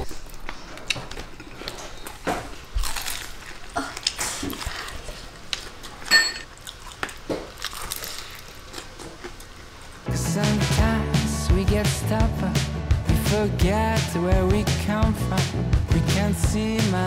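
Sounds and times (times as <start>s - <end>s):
fried chicken crunching: 2.8s - 5.1s, 6.6s - 9.8s.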